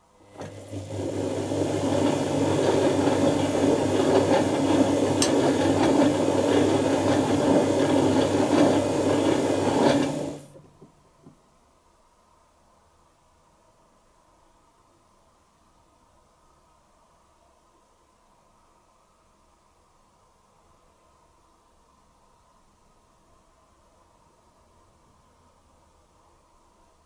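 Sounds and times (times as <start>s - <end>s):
washing machine motor hum: 0.0s - 11.4s.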